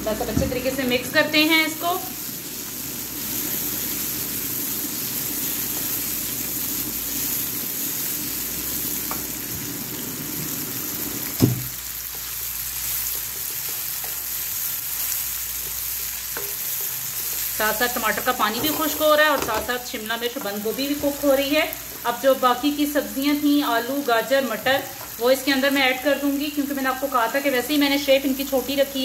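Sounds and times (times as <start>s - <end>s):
vegetables sizzling in oil: 0.0s - 29.0s
spatula scraping a wok: 15.0s - 19.5s.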